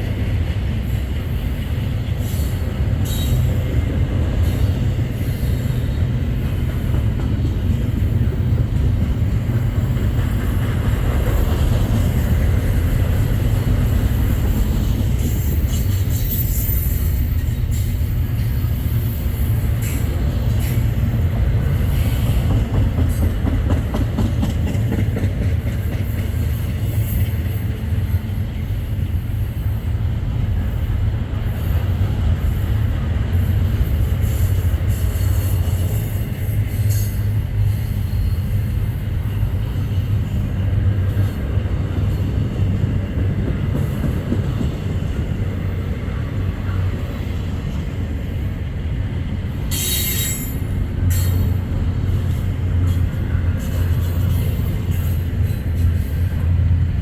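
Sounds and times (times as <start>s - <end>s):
freight train rumbling: 0.0s - 57.0s
wheels clicking over rail joints: 6.3s - 27.8s.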